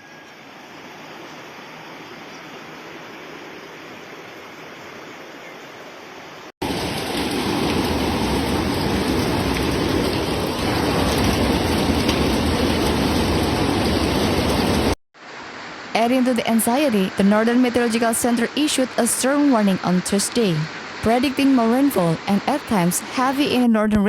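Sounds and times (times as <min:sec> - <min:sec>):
flood water rushing: 0:06.6 - 0:23.6.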